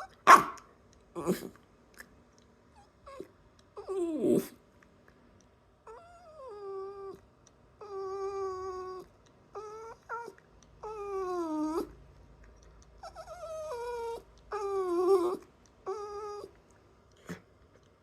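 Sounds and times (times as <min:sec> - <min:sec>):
dog whining: 0:00.0 - 0:01.6, 0:02.7 - 0:04.6, 0:05.8 - 0:07.2, 0:07.8 - 0:12.0, 0:13.0 - 0:16.6.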